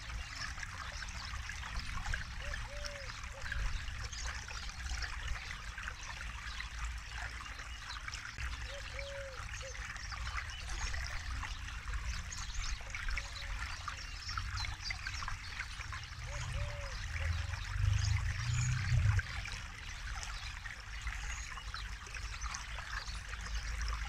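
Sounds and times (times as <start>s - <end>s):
river flowing and trickling: 0.0s - 24.0s
low rumble: 17.2s - 19.5s.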